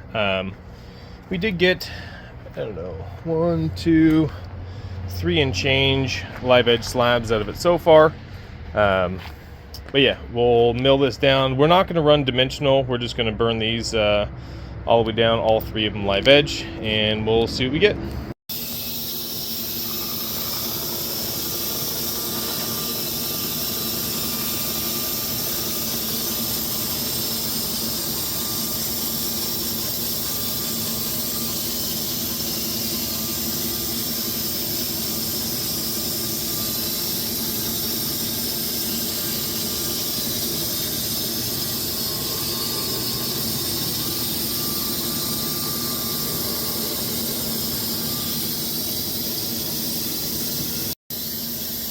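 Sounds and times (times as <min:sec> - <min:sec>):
band sawmill cutting logs: 0:18.5 - 0:49.8.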